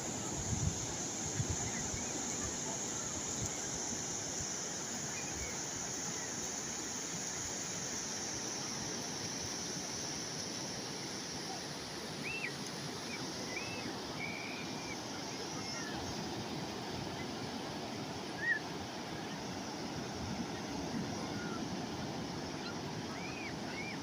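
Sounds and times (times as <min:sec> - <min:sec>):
wind rumbling on microphone: 0:00.0 - 0:04.0
calm sea waves washing: 0:00.0 - 0:24.0.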